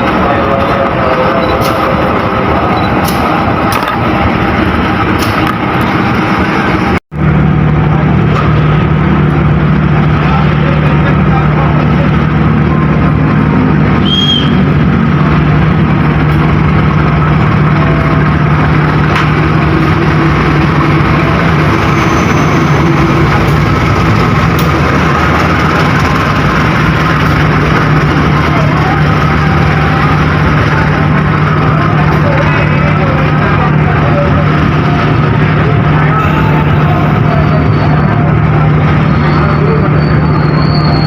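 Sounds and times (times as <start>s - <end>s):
diesel locomotive engine running: 0.0s - 41.0s
high squeak: 39.2s - 41.0s.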